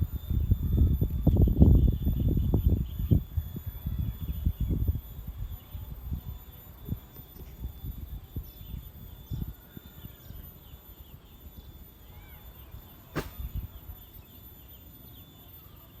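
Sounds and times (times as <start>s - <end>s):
birds chirping faintly: 0.0s - 16.0s
sharp click: 13.1s - 13.6s.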